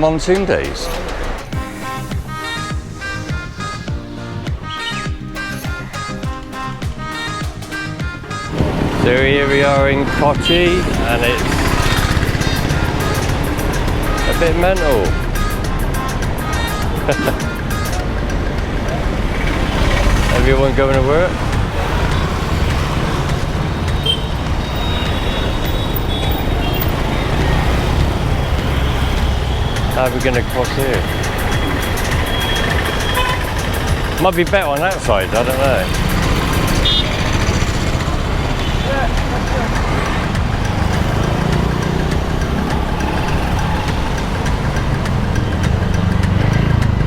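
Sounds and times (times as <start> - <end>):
road traffic rumble: 0.0 - 47.0.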